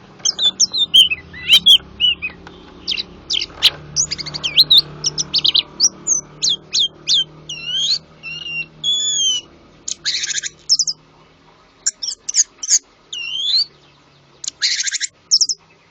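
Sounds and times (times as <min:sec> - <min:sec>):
songbird singing: 0:00.0 - 0:15.9.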